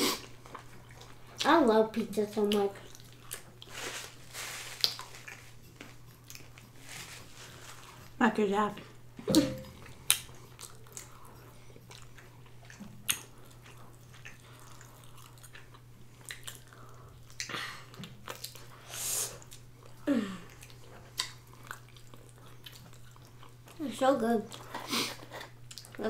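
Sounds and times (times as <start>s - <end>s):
chewing and biting food: 2.4s - 3.8s, 4.7s - 8.2s, 9.7s - 18.8s, 19.4s - 23.8s, 24.5s - 26.0s.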